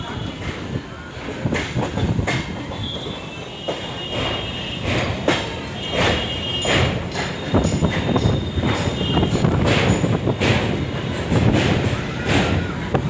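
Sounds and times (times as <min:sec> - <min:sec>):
clattering over rail joints: 0:00.0 - 0:13.0
train wheels rumbling on rails: 0:00.0 - 0:13.0
wheel squeal: 0:02.7 - 0:12.9.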